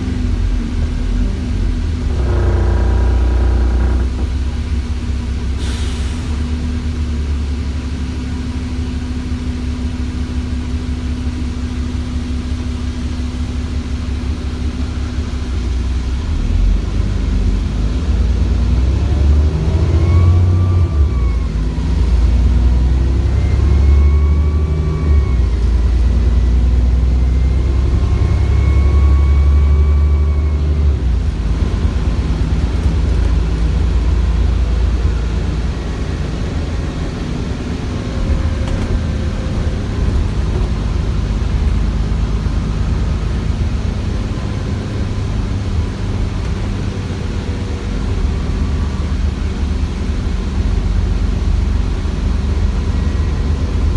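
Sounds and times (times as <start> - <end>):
bus diesel engine drone: 0.0 - 53.9
turbo whine: 1.7 - 5.1.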